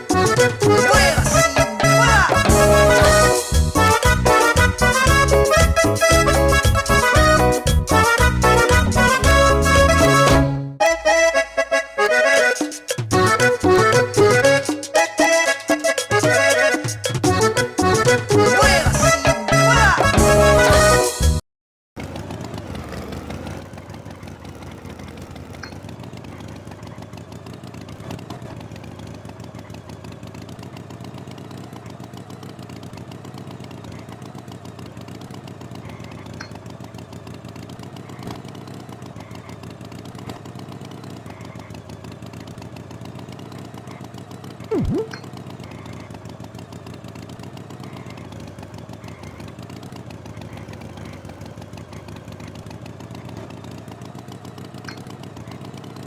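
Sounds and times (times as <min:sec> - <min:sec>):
tractor engine running: 0:00.0 - 0:21.4, 0:22.0 - 0:56.0
loud swooping tone: 0:44.7 - 0:45.2.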